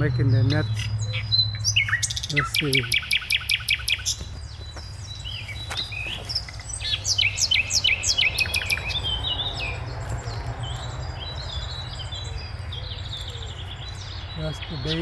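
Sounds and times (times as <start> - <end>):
songbird whistling: 0.0 - 15.0.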